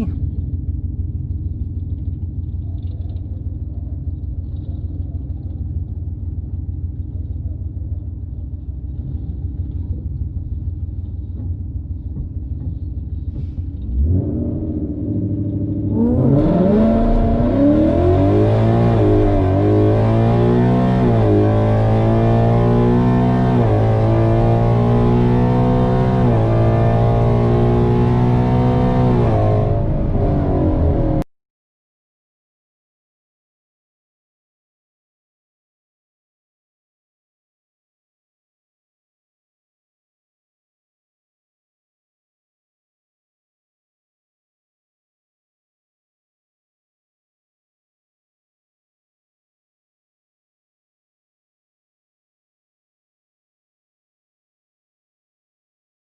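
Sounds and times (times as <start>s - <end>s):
car engine rumbling and revving: 0.0s - 31.3s.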